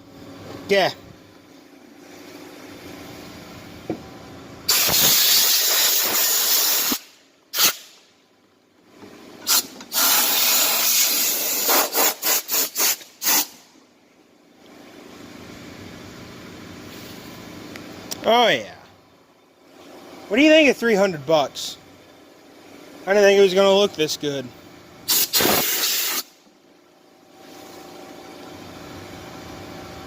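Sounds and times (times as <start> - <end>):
pressure washer spraying in bursts: 4.7 - 7.9, 9.5 - 13.6, 25.1 - 26.4.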